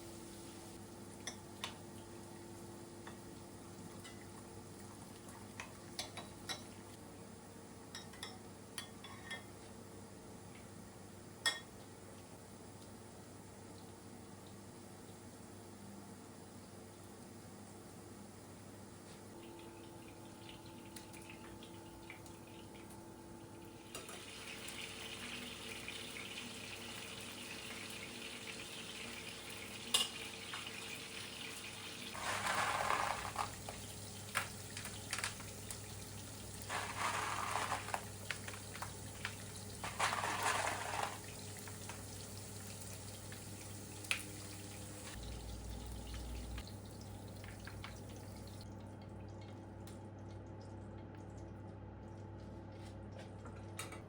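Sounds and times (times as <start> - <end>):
tap water running into sink: 23.8 - 48.8.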